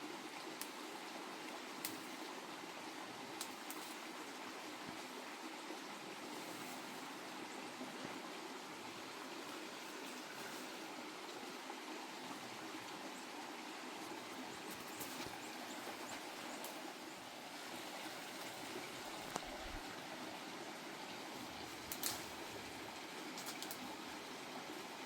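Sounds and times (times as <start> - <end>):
running water rushing: 0.0 - 25.0
faint ticks: 1.8 - 2.1, 3.4 - 4.0, 16.1 - 16.8, 21.7 - 22.3, 23.4 - 23.9.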